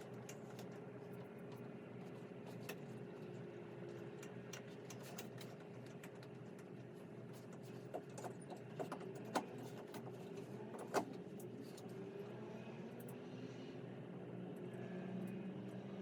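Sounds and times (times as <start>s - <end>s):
light clicks and taps: 3.9s - 11.8s.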